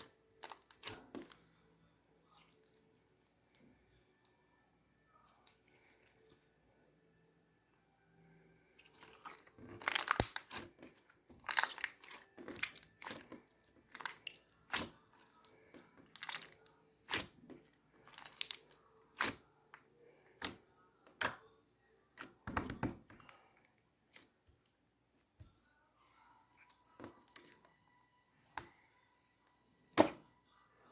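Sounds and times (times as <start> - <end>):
slime squeezed wet pops: 9.8 - 10.6.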